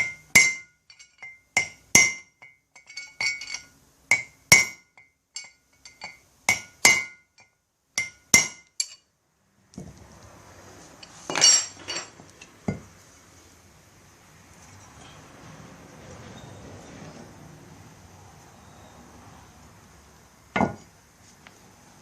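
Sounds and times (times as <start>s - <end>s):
hammer striking steel: 0.0s - 9.0s.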